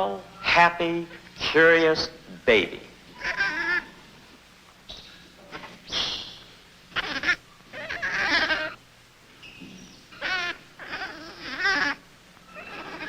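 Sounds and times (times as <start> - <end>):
infant monkey crying: 3.2 - 4.0, 4.9 - 8.8, 9.6 - 13.0.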